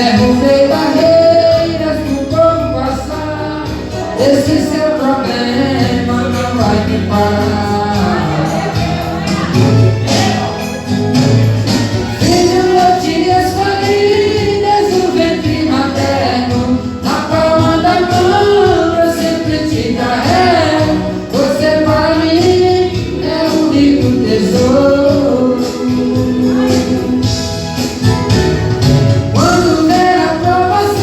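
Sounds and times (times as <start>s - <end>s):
person singing gospel: 0.0s - 28.4s, 29.2s - 31.0s
band accompaniment: 0.0s - 31.0s.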